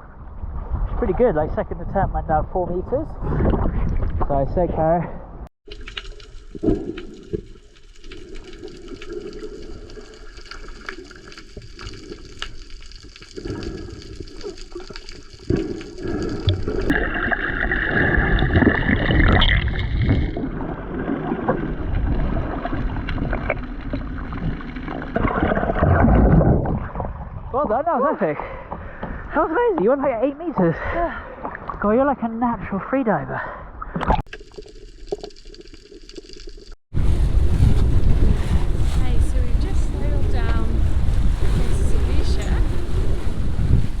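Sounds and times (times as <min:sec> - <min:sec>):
muffled underwater swishing: 0:37.0 - 0:44.0.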